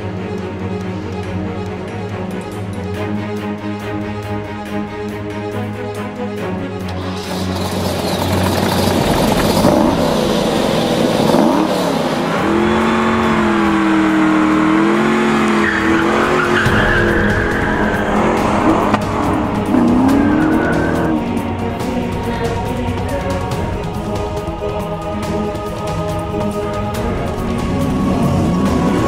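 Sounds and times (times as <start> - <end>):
background music: 0.0 - 29.0
car engine revving: 5.6 - 29.0
tyres squealing: 6.9 - 22.4.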